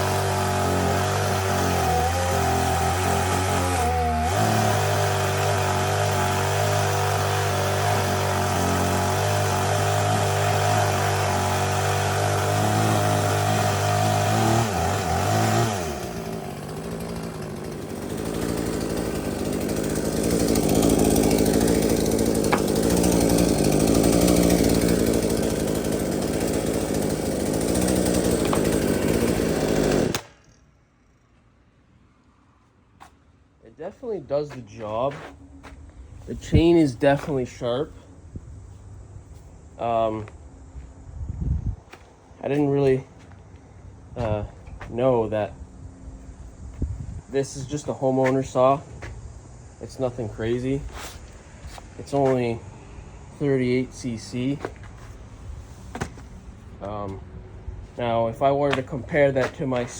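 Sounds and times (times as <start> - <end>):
chainsaw cutting log: 0.0 - 30.7, 49.9 - 52.7, 53.3 - 57.2, 58.0 - 59.9.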